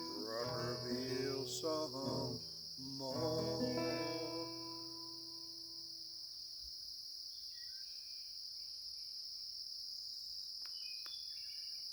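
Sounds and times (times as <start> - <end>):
acoustic guitar chord ringing: 0.0 - 5.8
insect chorus chirring: 0.0 - 11.9.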